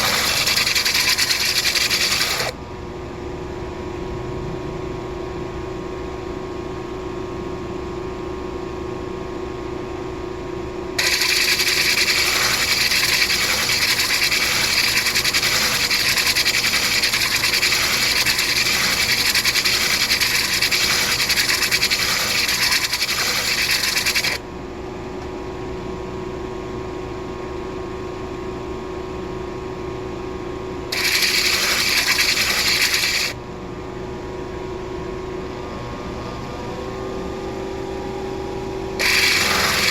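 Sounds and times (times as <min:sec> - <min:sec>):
gritty hiss of stone grinding: 0:00.0 - 0:02.5, 0:11.0 - 0:24.4, 0:30.9 - 0:33.4, 0:39.0 - 0:39.9
grinding wheel humming: 0:00.0 - 0:02.6, 0:11.0 - 0:24.4, 0:30.9 - 0:33.4, 0:39.0 - 0:39.9.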